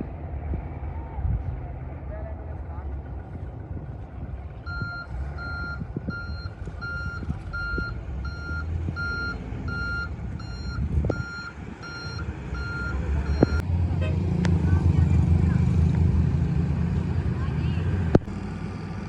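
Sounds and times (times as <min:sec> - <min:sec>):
diesel engine rumble: 0:00.0 - 0:19.0
truck reversing alarm beeping: 0:04.6 - 0:13.6.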